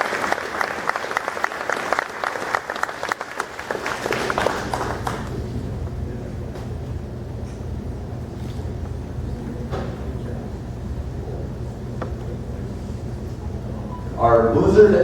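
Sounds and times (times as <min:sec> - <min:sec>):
audience applauding: 0:00.0 - 0:05.5
low steady hum: 0:03.5 - 0:15.0.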